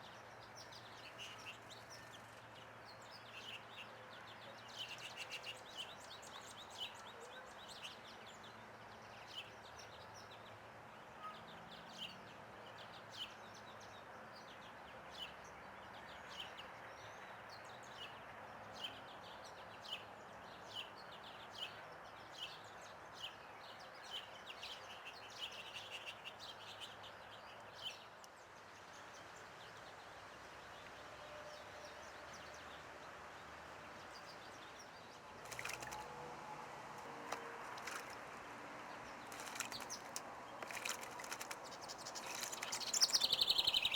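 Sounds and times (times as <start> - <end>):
small birds chirping: 33.9 - 36.2, 37.0 - 43.9.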